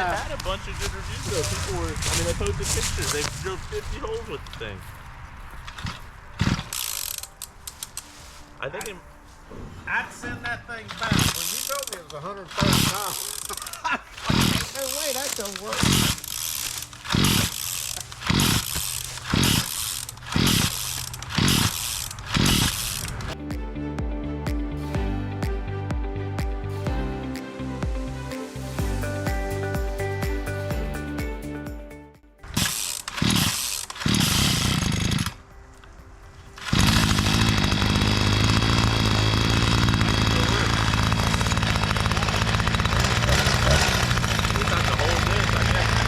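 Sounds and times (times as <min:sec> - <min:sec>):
earth auger engine surging: 0:05.7 - 0:08.0, 0:10.9 - 0:23.4, 0:32.4 - 0:35.4, 0:36.6 - 0:46.0.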